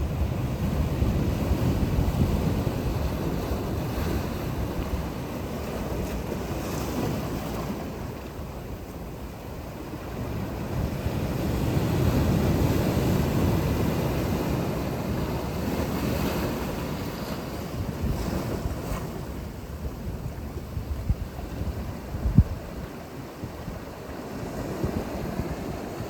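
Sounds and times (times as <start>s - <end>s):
sea waves breaking: 0.0s - 26.0s
wind rumbling on microphone: 0.0s - 26.0s.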